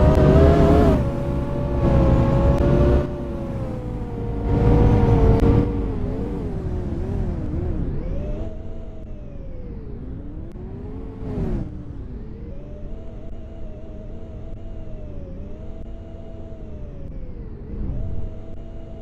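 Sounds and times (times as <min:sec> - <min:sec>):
bus diesel engine: 0:00.0 - 0:07.7.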